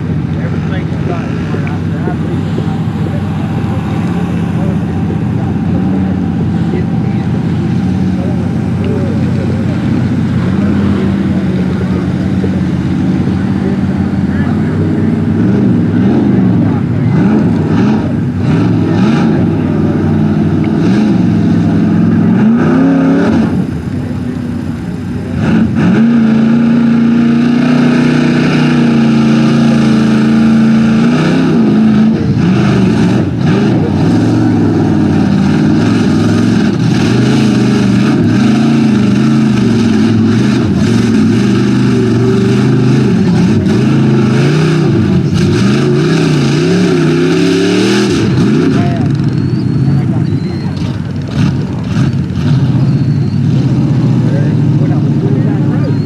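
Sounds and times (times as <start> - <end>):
truck engine revving hard: 0.0 - 56.0.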